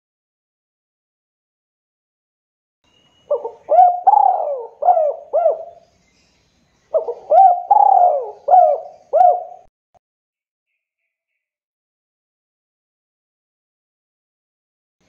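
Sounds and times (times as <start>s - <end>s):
dove cooing: 3.3s - 5.8s, 6.9s - 9.7s.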